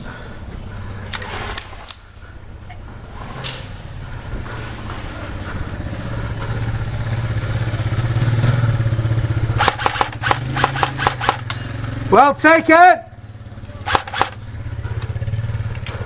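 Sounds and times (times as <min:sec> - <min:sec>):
low engine-like drone: 0:00.0 - 0:12.4, 0:13.0 - 0:16.0
airsoft rifle firing: 0:09.6 - 0:11.5, 0:13.8 - 0:14.4.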